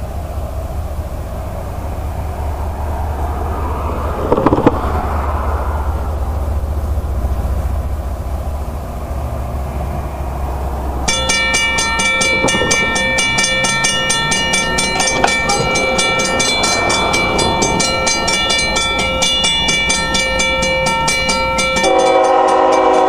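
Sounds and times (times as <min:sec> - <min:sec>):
locomotive rumble: 0:00.0 - 0:23.0
crossing bell ringing rapidly: 0:11.0 - 0:23.0.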